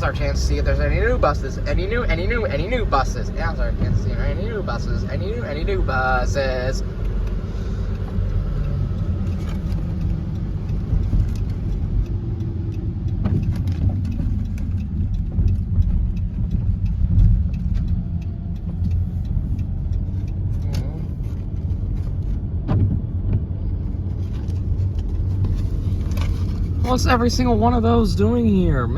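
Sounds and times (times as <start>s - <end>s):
engine and road rumble: 0.0s - 28.9s
faint ticks: 7.0s - 22.6s.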